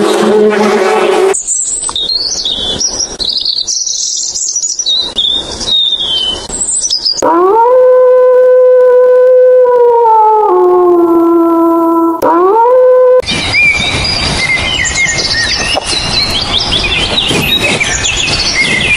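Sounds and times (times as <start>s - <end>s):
robin singing: 1.4s - 7.2s, 13.2s - 18.9s
wolf howling: 7.2s - 13.3s.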